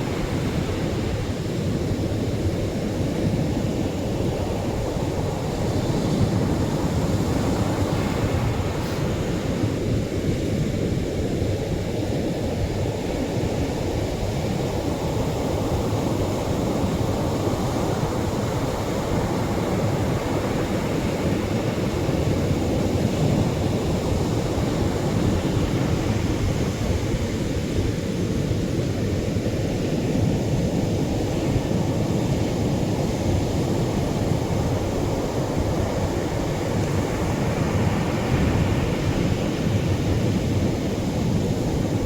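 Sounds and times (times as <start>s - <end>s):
surf breaking on a beach: 16.4s - 42.0s.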